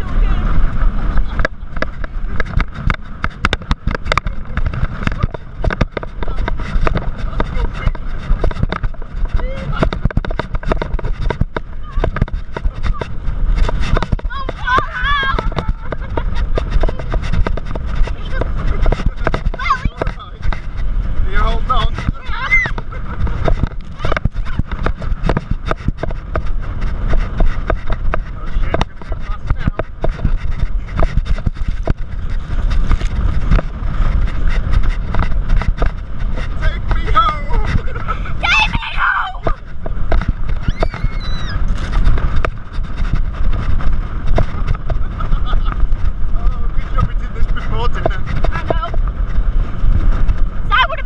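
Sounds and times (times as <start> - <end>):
rushing wind and water: 0.0 - 51.0
slaps and knocks on waves: 1.3 - 20.8, 21.8 - 38.6.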